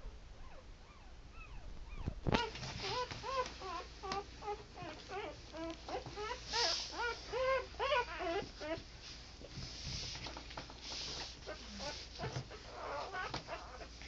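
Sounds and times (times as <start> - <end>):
puppies squealing and whimpering: 0.4 - 8.9, 11.4 - 14.0.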